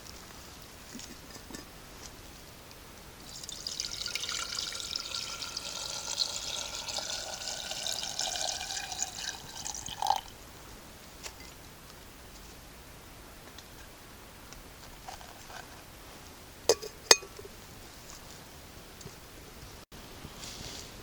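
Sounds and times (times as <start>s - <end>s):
water pouring in stream: 3.2s - 10.3s.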